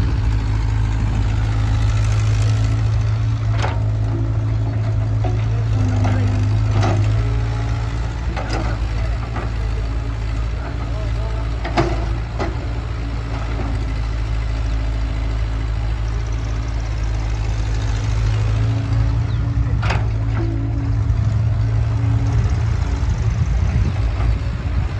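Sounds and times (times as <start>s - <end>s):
diesel engine droning: 0.0s - 24.9s.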